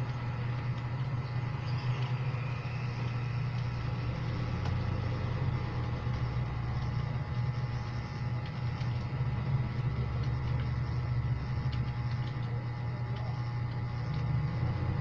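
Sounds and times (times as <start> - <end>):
steady low hum: 0.0 - 15.0
computer keyboard keystrokes: 11.6 - 14.4.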